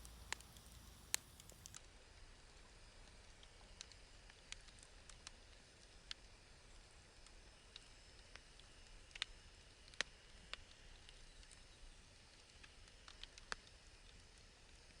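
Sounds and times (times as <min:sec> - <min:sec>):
faint hiss: 0:00.0 - 0:01.8
firewood crackling and popping: 0:00.0 - 0:01.8, 0:03.3 - 0:15.0.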